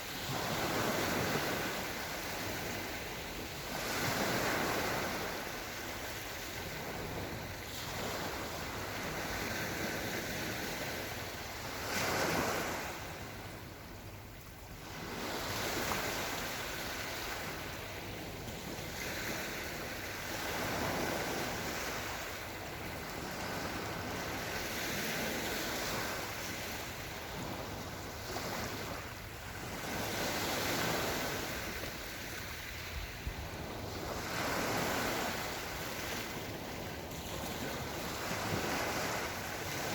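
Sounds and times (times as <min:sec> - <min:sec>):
waves washing onto shore: 0:00.0 - 0:39.9.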